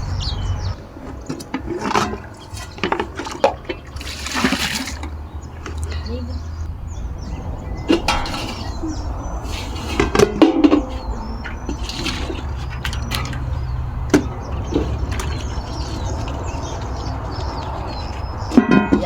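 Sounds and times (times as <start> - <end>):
kitchen utensils knocking: 7.9 - 19.0.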